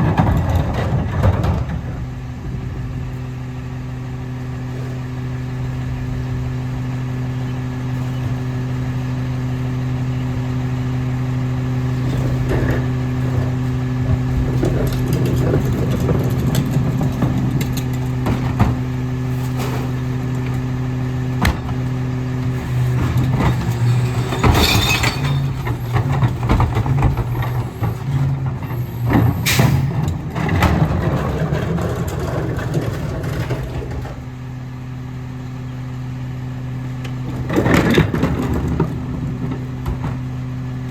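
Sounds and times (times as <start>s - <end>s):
recyclables clattering and banging: 0.0s - 2.9s, 11.9s - 34.4s, 37.1s - 40.6s
garbage truck diesel engine: 0.0s - 40.9s.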